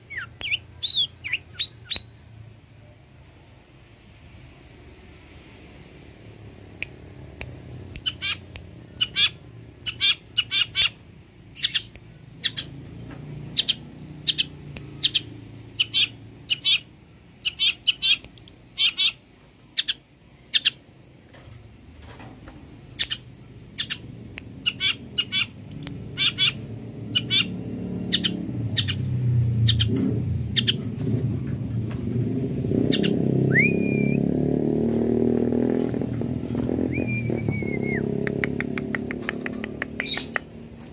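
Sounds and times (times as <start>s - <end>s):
bird calling harsh notes: 8.0s - 11.0s, 13.6s - 18.2s, 18.8s - 19.2s, 24.6s - 29.0s, 32.9s - 34.2s
bird whistled notes sliding up: 36.9s - 38.1s.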